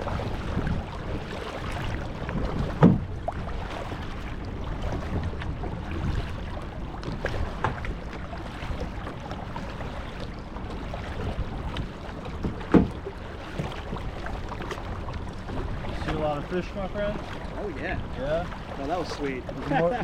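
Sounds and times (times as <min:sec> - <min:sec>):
wind noise: 0:00.0 - 0:08.0
paddle knocks and splashes: 0:00.0 - 0:20.0
water noise: 0:00.0 - 0:20.0.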